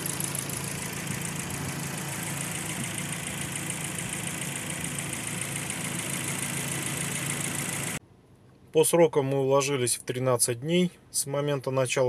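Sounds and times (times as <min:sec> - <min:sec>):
car engine idling with ticking: 0:00.0 - 0:08.0.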